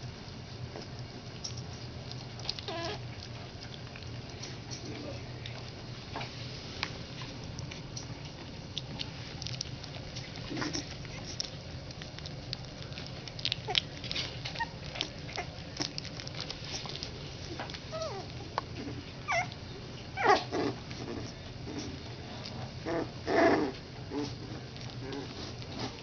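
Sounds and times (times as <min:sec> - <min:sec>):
puppies whimpering and squeaking: 0:02.4 - 0:03.2, 0:13.3 - 0:22.0.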